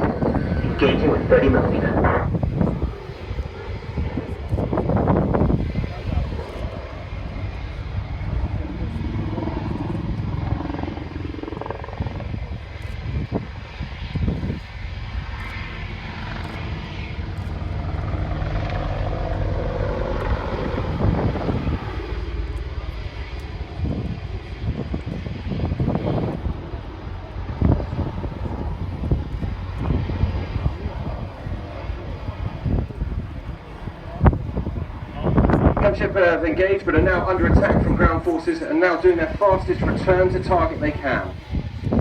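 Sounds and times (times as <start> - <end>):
helicopter flying past: 0.0 - 42.0.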